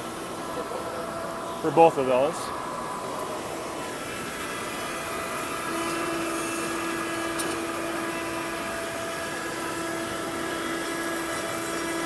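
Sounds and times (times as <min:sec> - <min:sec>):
router spindle whining: 0:00.1 - 0:12.0
cutting bit carving wood: 0:05.5 - 0:12.0.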